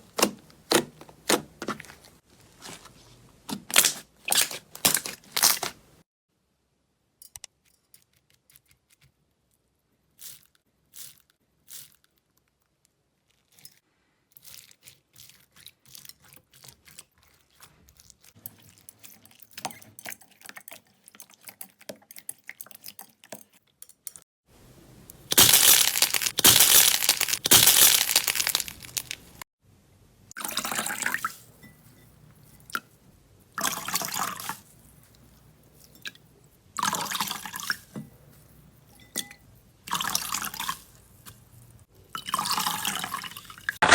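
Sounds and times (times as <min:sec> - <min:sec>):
wet slime squishing: 0:03.5 - 0:05.9, 0:14.4 - 0:23.5, 0:25.3 - 0:29.4
slime clicking and crackling: 0:25.3 - 0:29.4.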